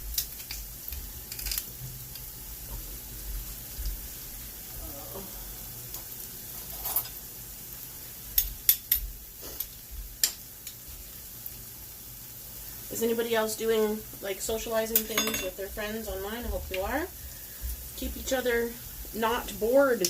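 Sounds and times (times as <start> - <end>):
food sizzling in a pan: 0.0 - 20.0
kitchen utensils clicking: 15.0 - 15.5.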